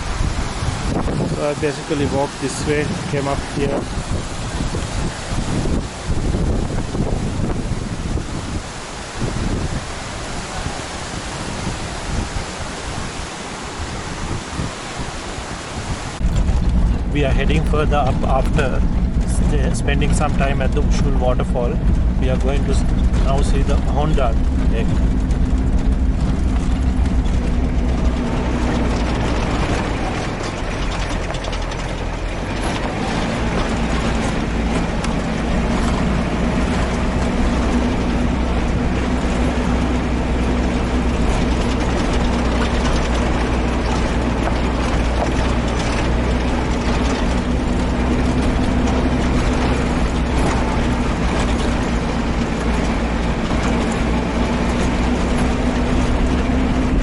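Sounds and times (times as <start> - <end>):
vehicle body rattling: 0.0 - 8.6, 16.2 - 57.0
jeep engine running: 0.0 - 57.0.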